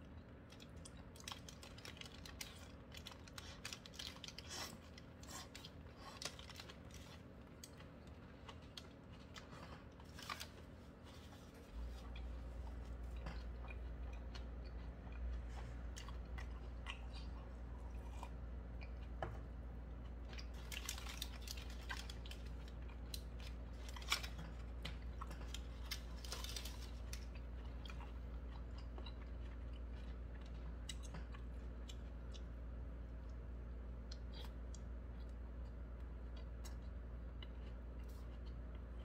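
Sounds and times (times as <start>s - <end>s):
steady low hum: 0.0s - 39.0s
chewing and biting burger: 0.2s - 19.2s, 19.9s - 32.7s
paper wrapper crackling: 20.5s - 24.6s, 25.3s - 27.3s.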